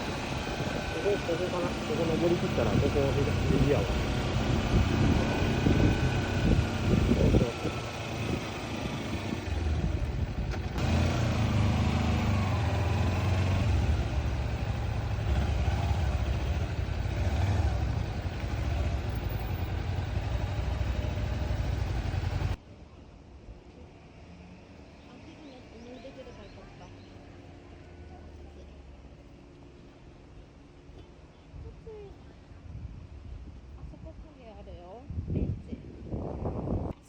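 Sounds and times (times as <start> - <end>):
motorcycle engine running: 0.0 - 22.6
wind noise: 2.6 - 10.8, 32.6 - 37.0.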